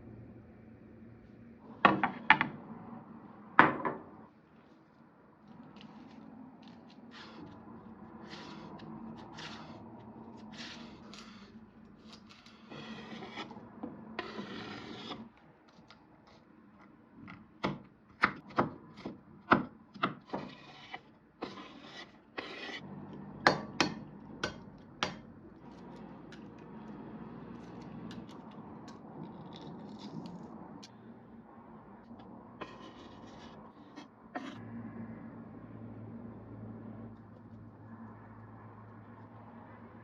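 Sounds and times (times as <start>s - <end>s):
rubbing and scraping on wood: 5.5s - 13.6s, 14.2s - 15.3s, 20.3s - 22.8s, 32.6s - 34.6s.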